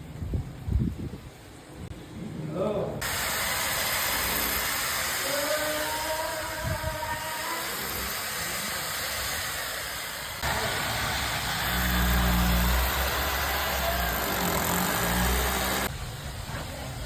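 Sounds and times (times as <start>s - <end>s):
steady hiss: 2.9s - 17.0s
motor humming: 10.4s - 15.9s.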